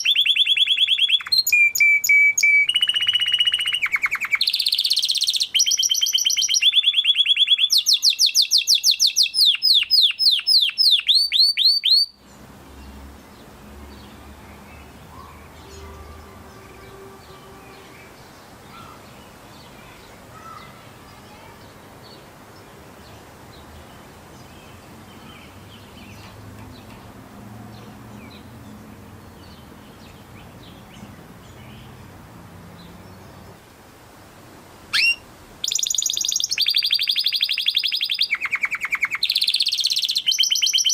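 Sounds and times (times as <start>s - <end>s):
canary trilling: 0.0s - 12.2s, 34.9s - 40.9s
distant bird chirps: 0.0s - 33.6s, 34.9s - 40.9s.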